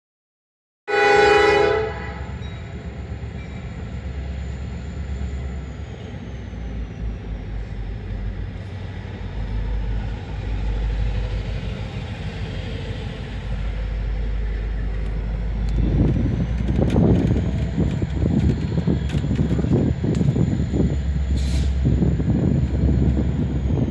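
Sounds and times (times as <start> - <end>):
locomotive horn: 0.9 - 2.4
train rumbling on track: 0.9 - 23.9.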